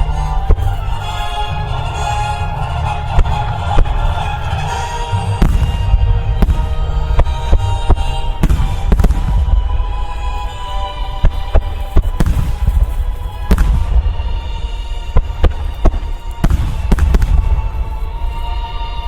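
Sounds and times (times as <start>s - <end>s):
deep rolling rumble: 0.0s - 19.0s
music playing: 0.0s - 19.0s
firework shells bursting: 15.1s - 18.0s.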